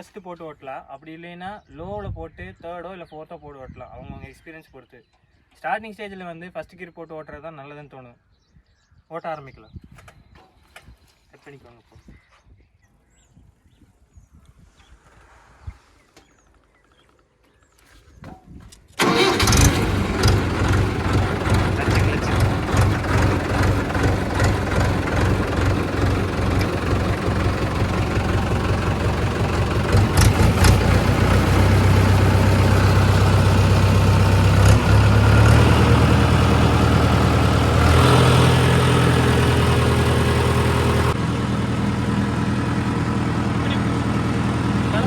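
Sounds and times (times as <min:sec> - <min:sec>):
tractor engine chugging: 0:19.0 - 0:45.0.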